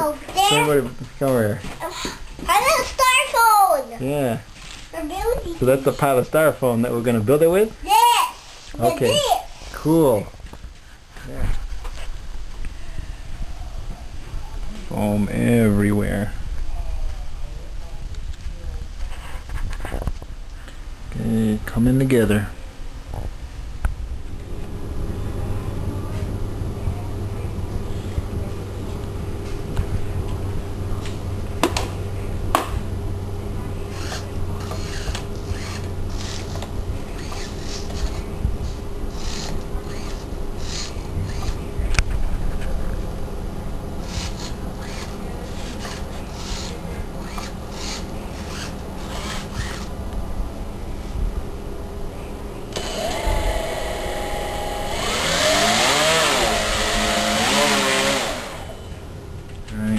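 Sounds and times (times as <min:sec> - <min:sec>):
steady low hum: 0:00.0 - 0:59.9
scratchy rubbing and scraping: 0:19.0 - 0:20.0, 0:33.9 - 0:41.7, 0:44.0 - 0:49.9
electric motor and propeller whine: 0:33.0 - 0:41.8, 0:44.0 - 0:49.9, 0:52.7 - 0:59.0.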